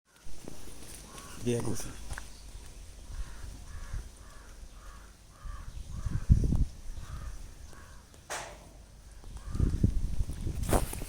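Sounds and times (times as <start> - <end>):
bird harsh calls: 0.5 - 9.8
low thumps: 8.3 - 9.0.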